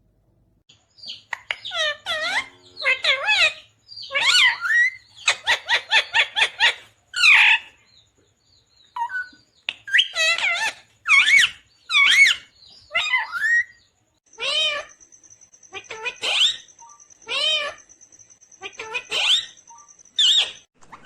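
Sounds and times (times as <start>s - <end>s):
parakeet wavering calls: 1.0s - 7.8s, 9.9s - 15.0s, 15.6s - 17.9s, 18.6s - 20.7s
parakeet squawking: 1.1s - 7.7s, 9.0s - 13.8s, 14.4s - 15.0s, 15.7s - 17.9s, 18.6s - 20.7s.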